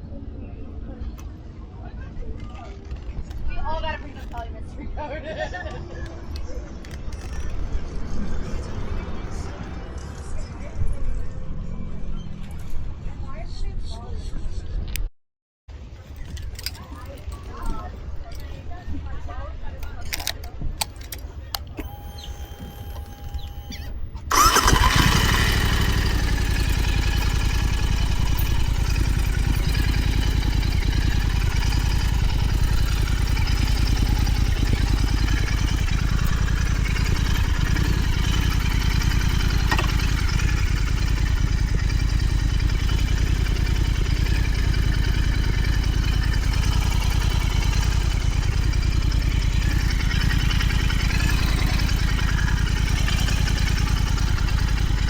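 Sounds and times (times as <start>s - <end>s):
motorcycle engine starting and idling: 5.3s - 10.3s, 19.9s - 55.0s.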